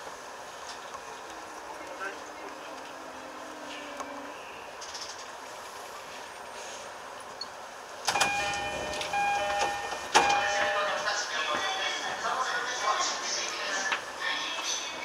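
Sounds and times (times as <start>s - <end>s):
electric train running: 8.0s - 15.0s
ringing chime tones: 8.2s - 11.1s.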